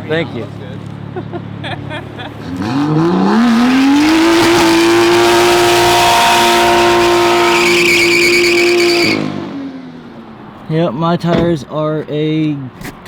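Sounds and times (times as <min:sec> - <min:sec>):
car engine revving: 0:02.1 - 0:11.7
tire squeal: 0:03.5 - 0:09.5.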